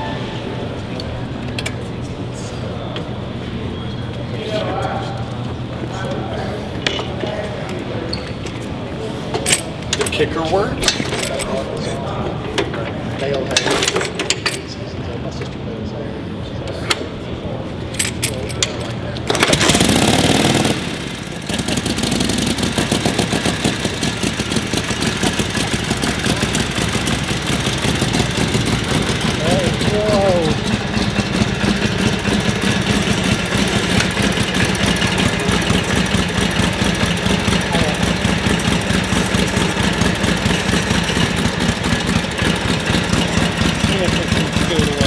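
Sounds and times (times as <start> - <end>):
motorcycle engine idling: 19.3 - 45.0.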